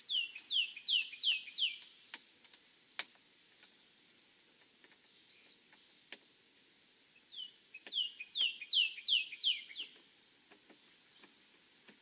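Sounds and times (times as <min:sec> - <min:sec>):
songbird whistling: 0:00.0 - 0:01.8, 0:07.2 - 0:10.0.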